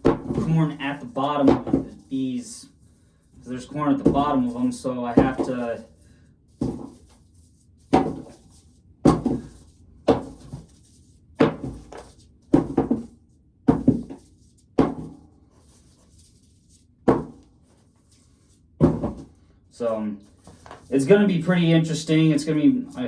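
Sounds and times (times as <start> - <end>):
corn cobs thunking into pail: 0.0 - 2.0.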